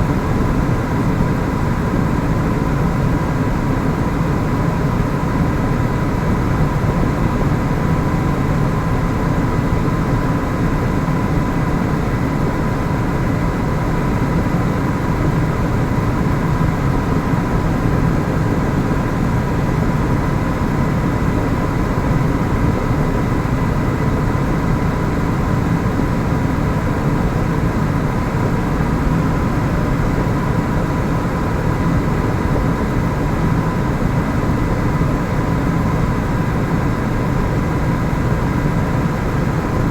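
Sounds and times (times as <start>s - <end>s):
helicopter turbine and rotor drone: 0.0s - 39.9s.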